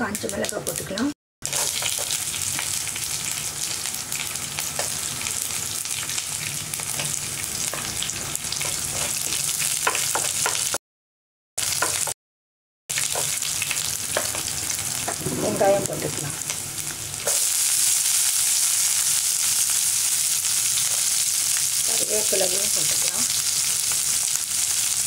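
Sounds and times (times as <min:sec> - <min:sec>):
garlic sizzling in hot oil: 0:00.0 - 0:10.8, 0:11.6 - 0:12.2, 0:12.9 - 0:25.0.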